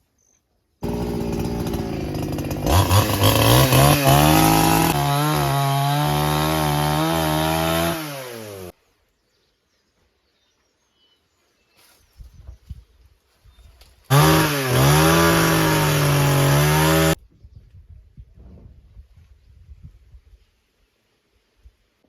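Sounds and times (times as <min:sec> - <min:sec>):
chainsaw engine revving: 0:00.8 - 0:08.7, 0:14.1 - 0:17.2.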